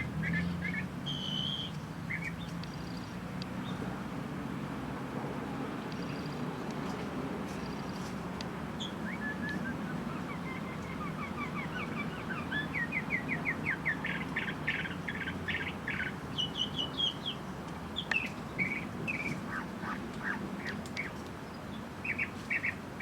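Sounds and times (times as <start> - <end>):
bird chirping song: 0.0 - 3.9, 5.8 - 8.2, 8.8 - 23.0.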